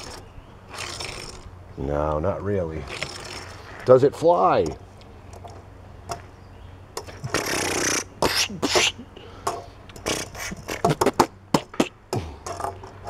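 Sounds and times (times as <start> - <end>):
man making airplane mouth sounds: 7.2 - 9.3, 10.0 - 12.8.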